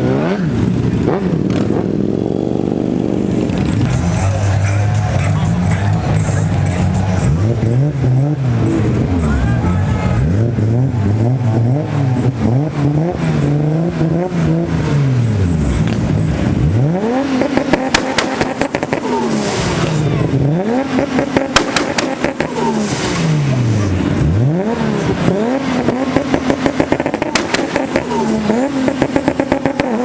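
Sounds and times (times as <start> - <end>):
car engine revving: 0.0 - 30.0
exhaust pops and crackles: 15.6 - 16.6, 17.2 - 23.2, 25.1 - 30.0.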